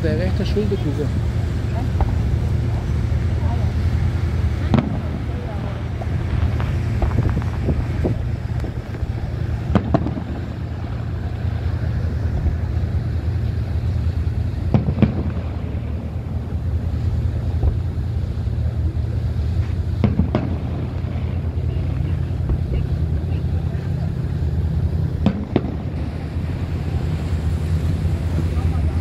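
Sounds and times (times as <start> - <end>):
boat engine drone: 0.0 - 29.0
wind on microphone: 0.0 - 29.0
fireworks bangs: 1.8 - 12.7, 14.6 - 18.0, 19.6 - 23.3, 24.9 - 27.2.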